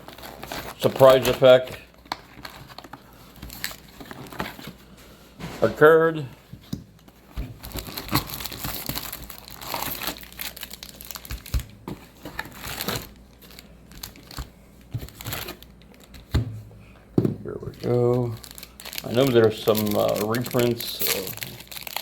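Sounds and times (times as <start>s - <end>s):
foil wrapper crinkling and tearing: 0.0s - 4.4s, 7.0s - 16.3s, 17.8s - 22.0s.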